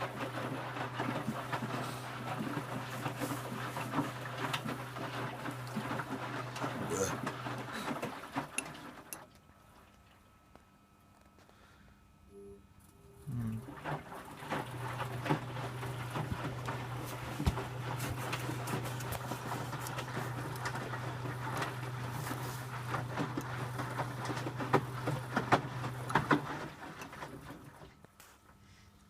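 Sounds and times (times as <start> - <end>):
wet laundry splashing and knocking: 0.0 - 8.9, 13.7 - 27.8
washing machine motor humming: 0.0 - 28.2.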